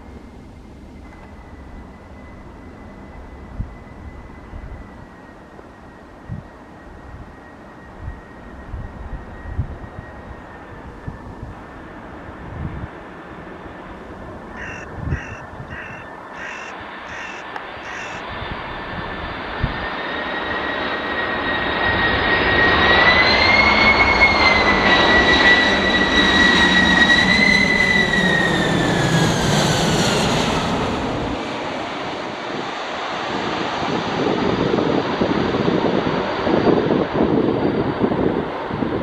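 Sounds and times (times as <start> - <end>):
jet engines passing by: 0.0 - 39.0
crow cawing: 14.5 - 18.2.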